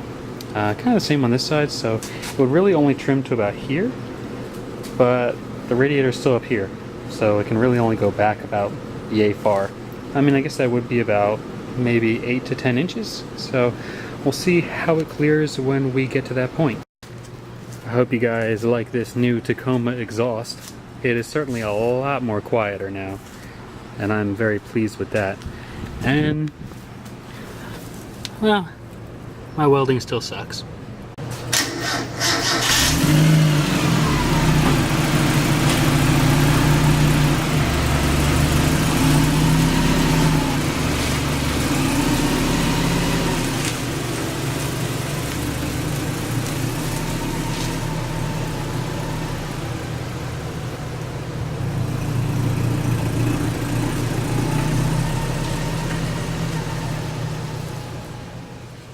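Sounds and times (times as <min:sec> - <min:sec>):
kart engine revving: 0:31.5 - 0:58.6.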